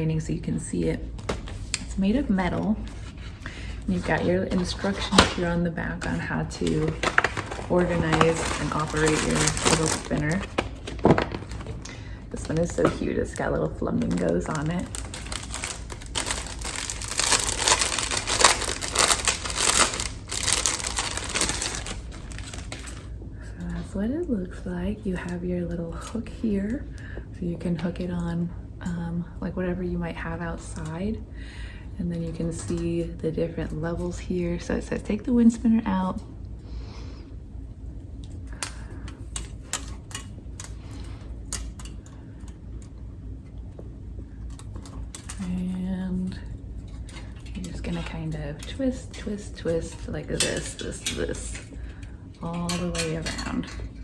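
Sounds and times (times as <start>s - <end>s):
low background hum: 0.0s - 54.0s
packaging crinkling and rustling: 2.6s - 23.1s.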